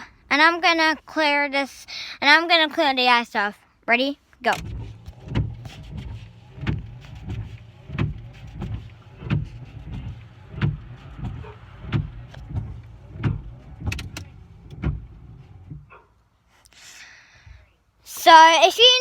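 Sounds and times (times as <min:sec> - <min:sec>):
wiper blades thumping: 0:04.4 - 0:16.1
wiper motor humming: 0:04.5 - 0:16.1.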